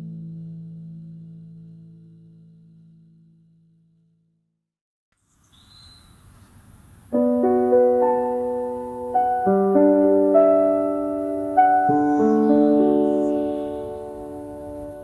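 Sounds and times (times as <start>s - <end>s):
faint hiss: 5.2s - 15.0s
slow solo piano music: 7.1s - 15.0s.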